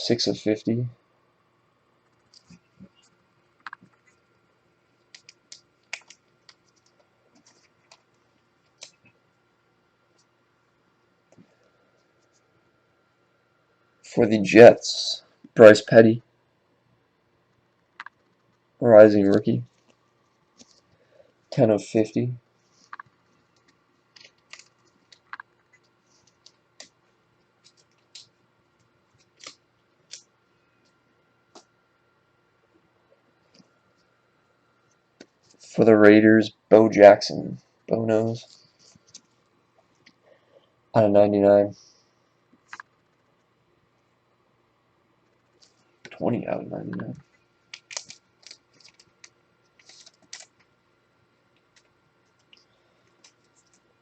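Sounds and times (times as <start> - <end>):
trading cards being handled: 5.0 - 9.1, 22.6 - 31.7, 46.9 - 50.7, 51.6 - 54.0.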